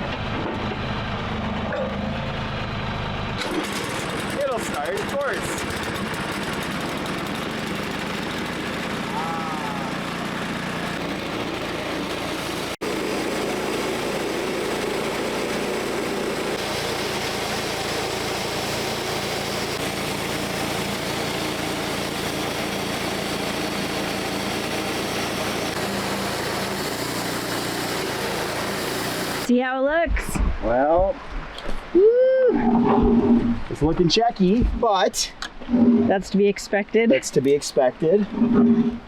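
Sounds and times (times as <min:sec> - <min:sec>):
sawmill gas engine milling log: 0:00.0 - 0:29.5.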